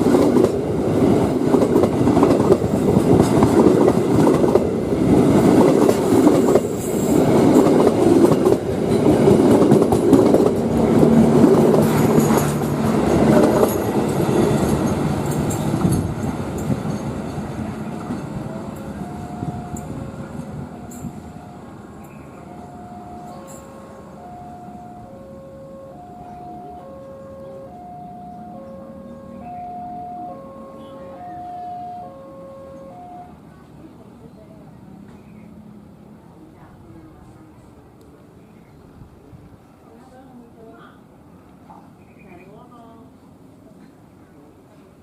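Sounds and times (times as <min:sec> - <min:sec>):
train wheels clattering: 0:01.3 - 0:21.4.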